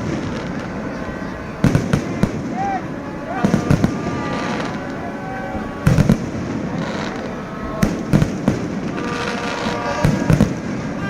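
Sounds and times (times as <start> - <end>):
fireworks bangs: 0.0 - 11.0
fireworks crackle and hiss: 0.0 - 11.0.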